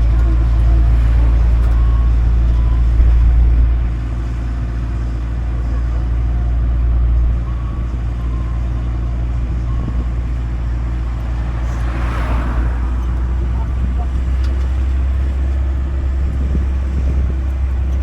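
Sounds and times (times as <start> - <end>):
road train engine rumble: 0.0 - 18.0.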